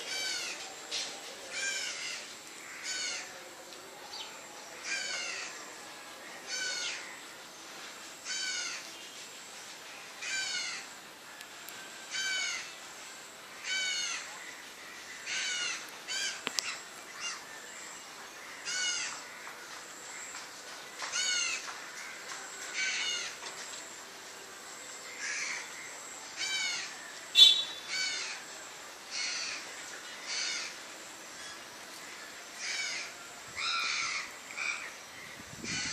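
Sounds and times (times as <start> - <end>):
bird calling: 26.4 - 28.4.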